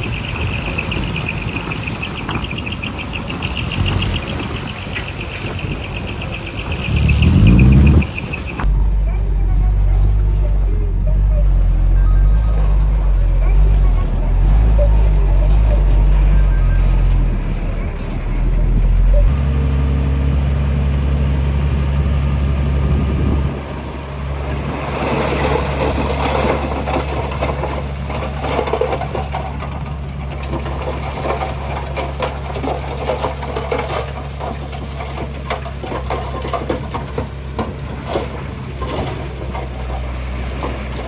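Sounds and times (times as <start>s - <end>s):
rock and soil crunching: 0.0s - 8.7s, 24.4s - 41.0s
diesel machinery running: 0.0s - 41.0s.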